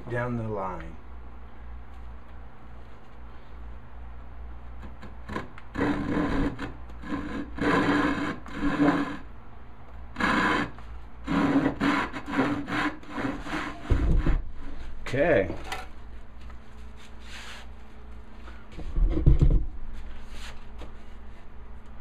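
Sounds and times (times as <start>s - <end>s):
hand saw cutting wood: 5.2s - 9.2s, 10.2s - 14.4s.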